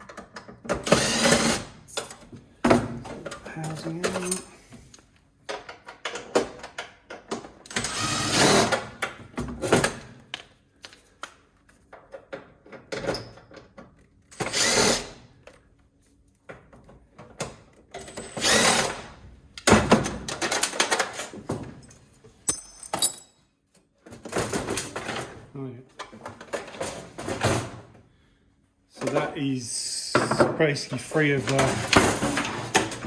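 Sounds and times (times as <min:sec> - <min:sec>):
power screwdriver whirring: 0:00.8 - 0:01.7, 0:07.7 - 0:08.8, 0:14.4 - 0:15.1, 0:18.0 - 0:19.0
metal and plastic parts clattering: 0:19.7 - 0:23.3, 0:24.0 - 0:27.8, 0:31.2 - 0:33.0.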